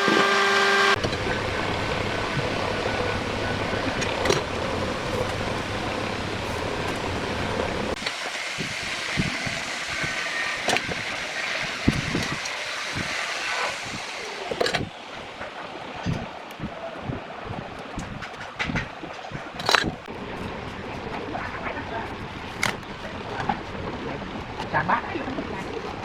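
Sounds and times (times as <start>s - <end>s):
power tool motor running: 0.0s - 15.4s
wood knocks and clicks: 11.8s - 14.9s, 17.9s - 20.1s.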